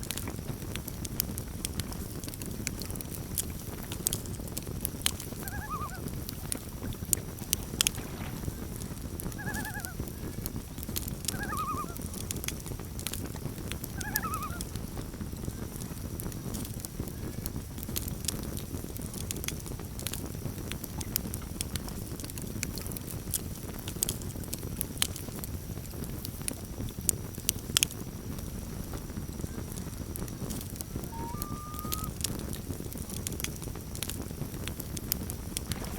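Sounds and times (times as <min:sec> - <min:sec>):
campfire crackling: 0:00.0 - 0:35.9
loon tremolo calls: 0:05.4 - 0:06.5, 0:09.3 - 0:10.2, 0:11.3 - 0:12.1, 0:13.9 - 0:14.7, 0:30.9 - 0:32.2.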